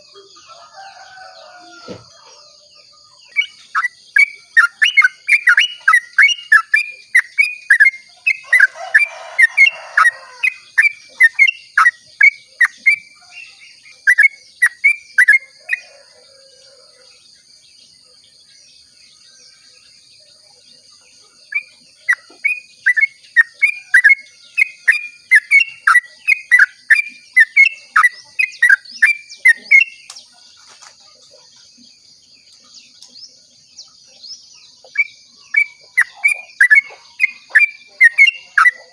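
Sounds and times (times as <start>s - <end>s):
bird singing whistled notes: 3.2s - 15.9s, 21.5s - 30.3s, 32.5s - 38.9s.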